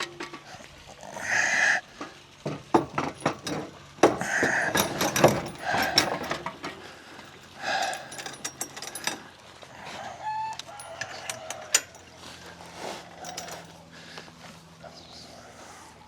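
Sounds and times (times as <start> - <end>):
sharp clicks and knocks: 0.0 - 0.7, 2.0 - 6.8
poultry calling: 0.4 - 2.0, 9.7 - 11.7.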